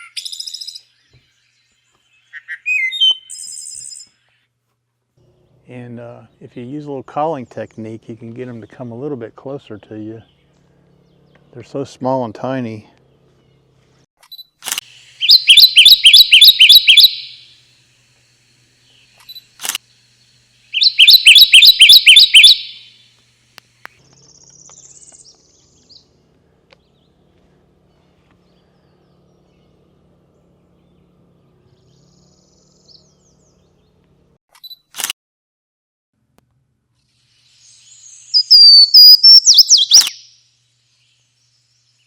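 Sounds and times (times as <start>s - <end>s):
bird song rapid chirping: 0.0s - 4.3s, 15.0s - 17.6s, 18.8s - 23.0s, 23.9s - 34.1s, 37.3s - 42.0s
sharp click: 14.2s - 14.9s, 19.2s - 19.8s, 34.5s - 35.2s, 39.9s - 40.2s
faint high bird call: 15.2s - 17.5s, 20.8s - 23.0s.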